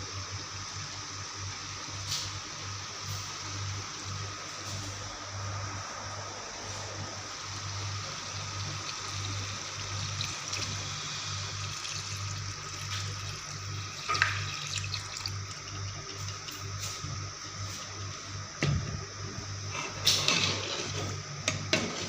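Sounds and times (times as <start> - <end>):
tap water running into sink: 8.3 - 17.0.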